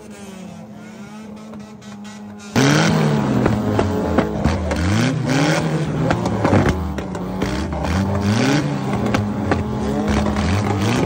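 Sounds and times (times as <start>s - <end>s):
car engine revving: 0.0s - 11.0s
exhaust cracks: 1.2s - 11.0s.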